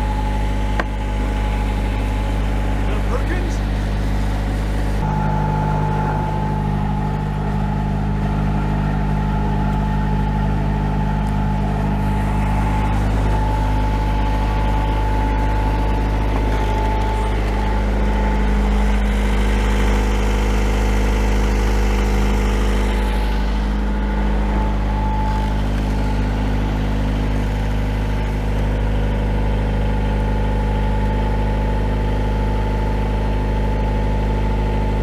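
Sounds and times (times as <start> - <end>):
diesel engine droning: 0.0 - 35.0
thin steady whine: 0.0 - 35.0.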